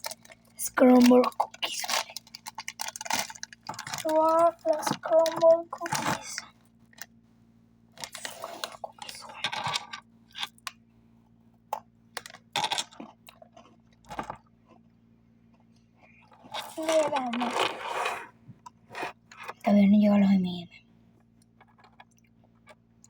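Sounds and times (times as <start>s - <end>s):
cookie crunching: 0.0s - 7.1s, 11.7s - 14.9s, 15.8s - 18.2s.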